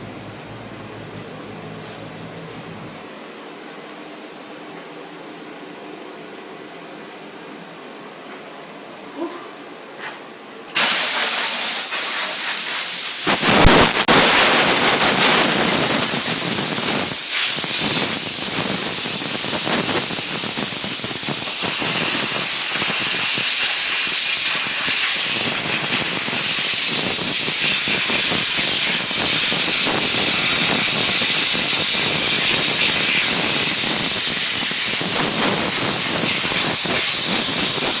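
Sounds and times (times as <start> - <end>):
steam wand hissing: 10.8 - 38.0.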